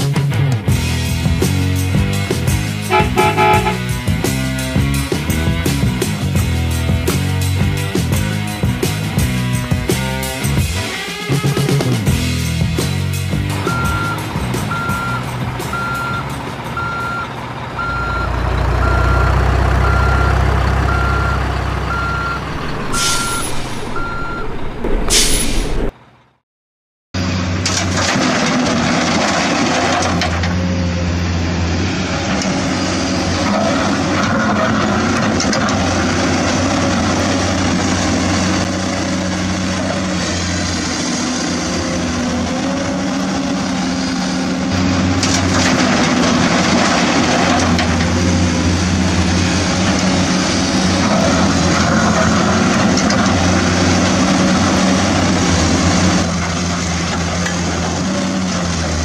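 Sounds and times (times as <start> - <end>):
diesel engine running: 0.1 - 10.9, 11.7 - 24.9, 27.2 - 59.0
truck reversing alarm beeps: 13.6 - 25.4.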